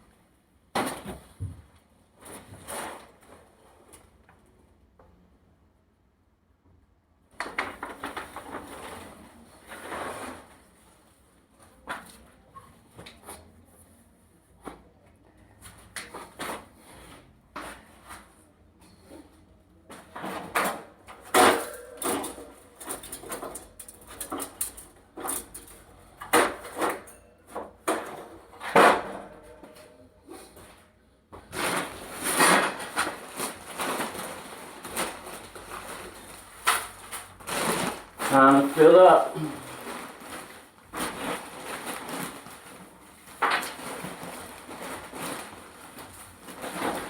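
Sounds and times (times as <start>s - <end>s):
scraping or rustling: 19.0s - 47.0s
objects knocking and clattering: 19.9s - 30.1s.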